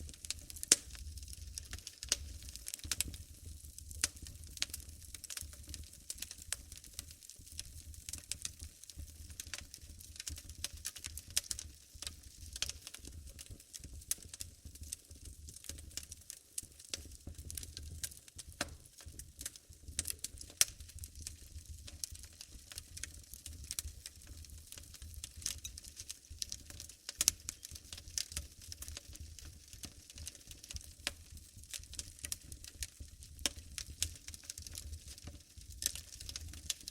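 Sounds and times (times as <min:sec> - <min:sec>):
wood fire crackling and popping: 0:00.0 - 0:36.9.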